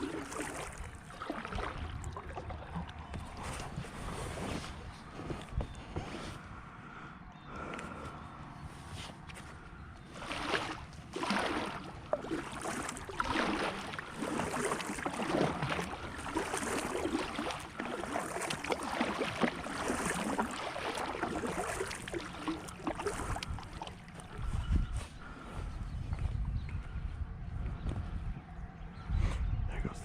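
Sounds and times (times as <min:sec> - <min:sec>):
kayak paddle splashing water: 0:00.0 - 0:05.6, 0:10.0 - 0:24.5.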